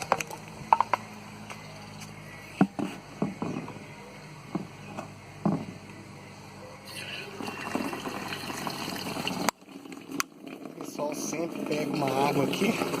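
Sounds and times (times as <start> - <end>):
knocks and clunks: 2.6 - 3.8, 4.4 - 5.9.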